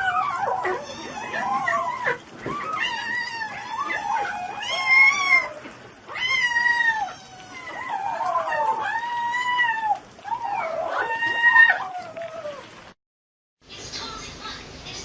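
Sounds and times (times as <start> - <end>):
cat meowing: 0.1 - 10.0.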